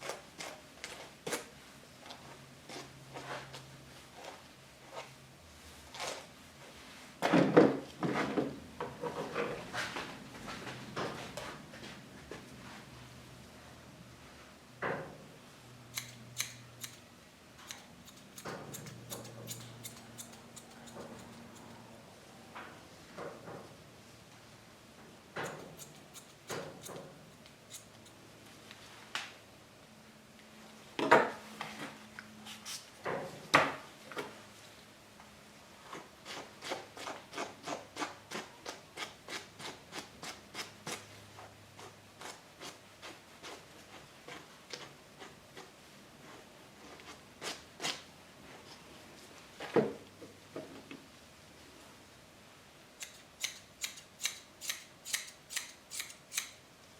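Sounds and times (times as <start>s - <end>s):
grooming shears snipping: 16.0s - 17.0s, 17.6s - 21.8s, 25.4s - 28.2s, 53.0s - 56.6s.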